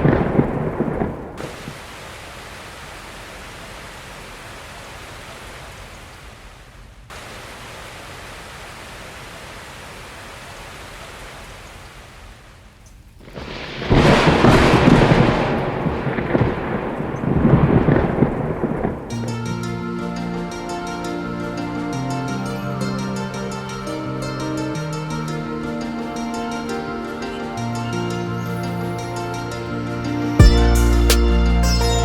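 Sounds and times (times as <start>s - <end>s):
thunder rumble: 0.0s - 1.9s, 13.2s - 19.6s
rain hiss: 0.0s - 32.0s.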